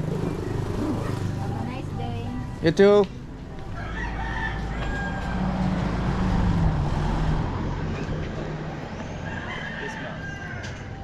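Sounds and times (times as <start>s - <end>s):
vehicle engine droning: 0.0s - 11.0s
rooster crowing: 3.7s - 6.1s, 9.2s - 11.0s.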